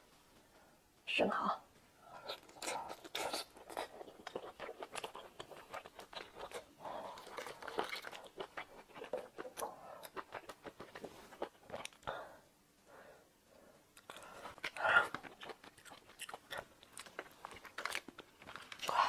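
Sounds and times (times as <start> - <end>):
wet mouth chewing clicks: 2.2 - 12.1, 14.0 - 18.8.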